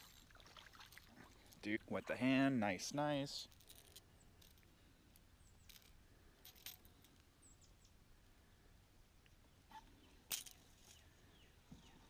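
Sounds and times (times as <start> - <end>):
faint bird chirps: 7.4 - 8.6.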